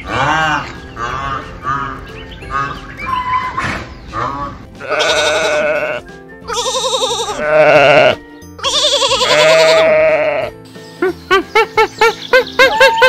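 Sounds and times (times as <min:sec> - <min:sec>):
sheep and goat bleating: 0:00.0 - 0:02.8, 0:04.1 - 0:10.6.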